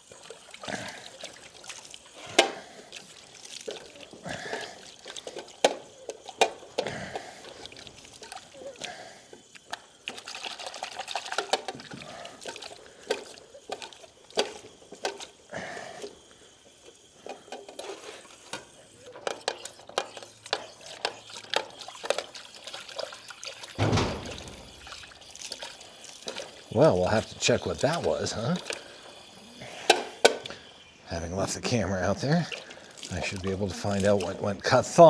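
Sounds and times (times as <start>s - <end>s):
water running and splashing: 0.0s - 35.0s
loud ka-thunk: 23.8s - 24.9s.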